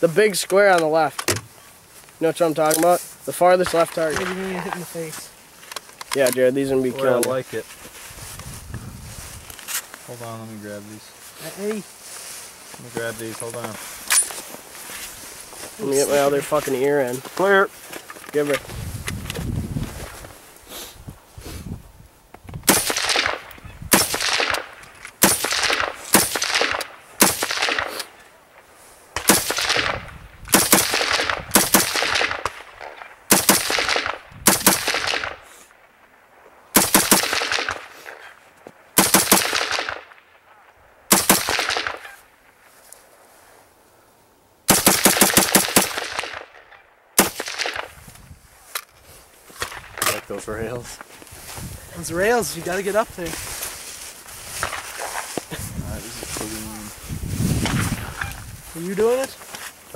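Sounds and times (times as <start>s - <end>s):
rifle shots with echo: 22.7s - 28.1s, 29.2s - 35.5s, 36.8s - 38.2s, 39.0s - 40.4s, 41.1s - 42.2s, 44.7s - 48.0s.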